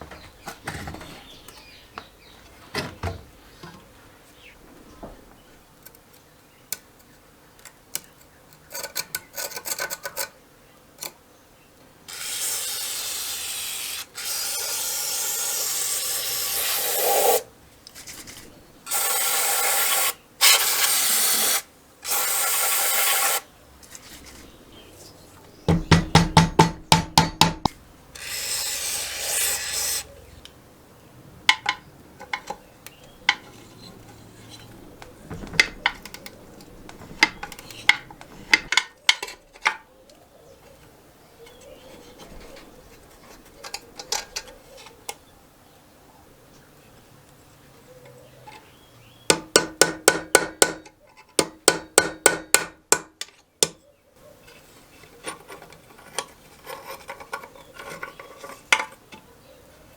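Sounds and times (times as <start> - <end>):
tool rasping scrapes: 28.2 - 30.1.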